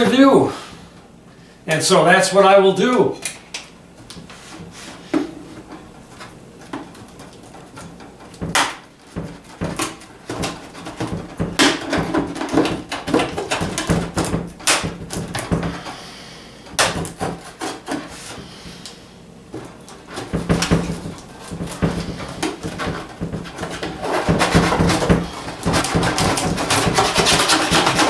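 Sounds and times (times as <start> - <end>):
cardboard rustling: 4.0 - 16.2, 16.8 - 28.0
bird feeder scraping and knocking: 4.2 - 16.0, 19.5 - 28.0.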